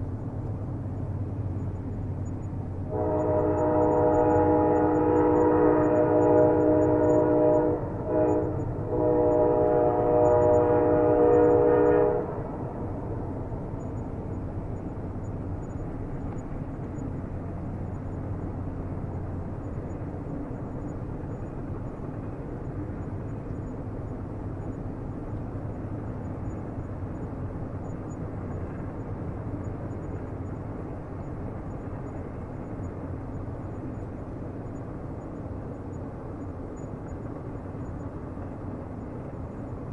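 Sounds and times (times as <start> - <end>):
train rumbling on rails: 0.0 - 39.9
train horn: 2.9 - 13.9.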